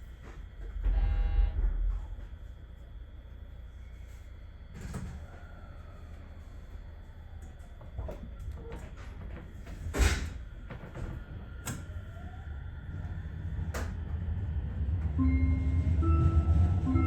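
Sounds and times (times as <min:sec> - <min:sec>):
train running rumble: 0:00.0 - 0:03.7, 0:07.7 - 0:17.0.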